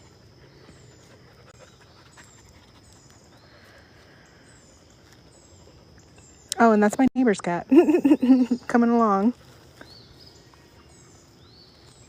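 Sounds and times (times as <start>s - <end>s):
faint dog panting: 0.0s - 4.1s
small birds chirping: 0.0s - 12.0s.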